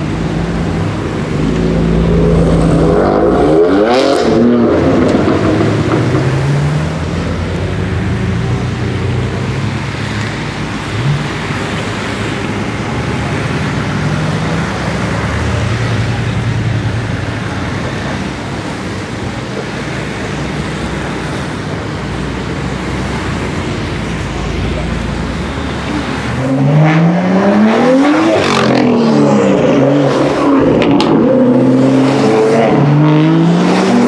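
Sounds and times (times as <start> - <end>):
engine revving: 1.2 - 7.0, 25.7 - 34.0.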